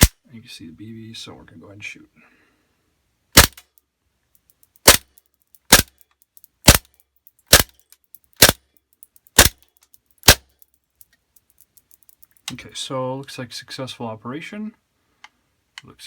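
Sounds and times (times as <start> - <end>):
airsoft pistol shots: 3.4 - 3.6, 4.8 - 5.1, 5.7 - 5.9, 6.6 - 6.8, 7.5 - 7.7, 8.4 - 8.6, 9.4 - 9.6, 10.2 - 10.4.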